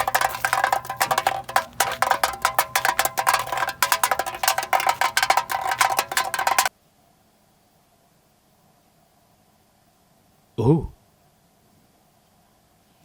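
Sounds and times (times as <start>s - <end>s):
rapid ringing percussive tapping: 0.0s - 6.7s.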